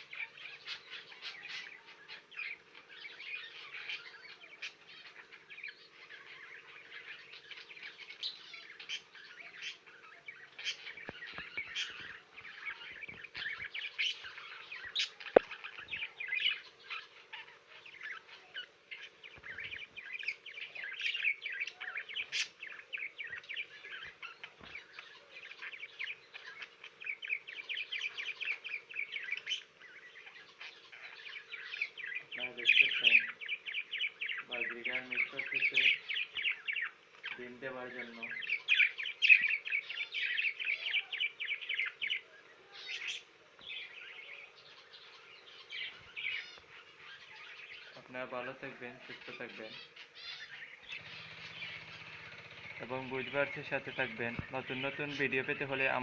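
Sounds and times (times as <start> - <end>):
budgerigars chattering: 0.0 - 56.0
faint steady hum: 0.0 - 56.0
sharp bird chirps: 0.0 - 56.0.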